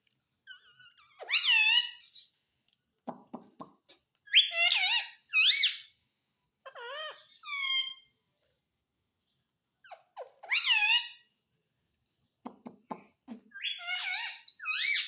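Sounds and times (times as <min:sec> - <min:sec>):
parrot squeaky calls: 0:00.5 - 0:02.3, 0:04.3 - 0:05.9, 0:06.6 - 0:08.1, 0:09.8 - 0:11.3, 0:13.5 - 0:15.0.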